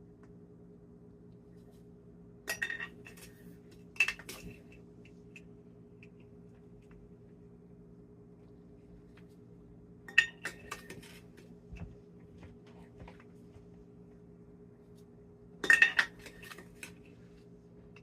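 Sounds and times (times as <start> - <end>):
utensils and dishes clattering: 15.6 - 16.7.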